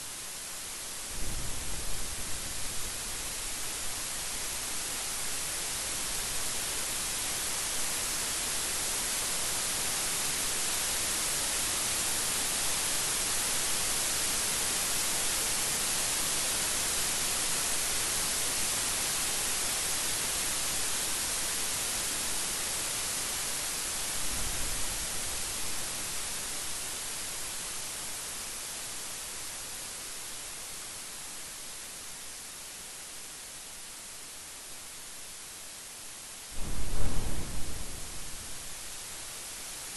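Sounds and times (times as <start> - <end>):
heavy rain hissing: 0.0 - 33.4, 34.2 - 39.9
low rumble: 36.6 - 38.9.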